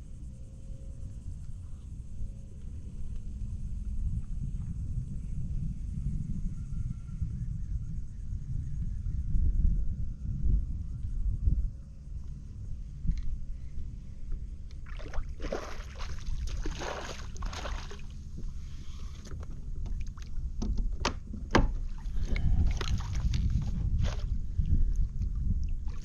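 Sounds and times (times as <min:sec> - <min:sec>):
wind rumble on microphone: 0:00.0 - 0:26.0
water splashing around kayak: 0:14.8 - 0:20.6, 0:21.6 - 0:25.0, 0:25.6 - 0:26.0.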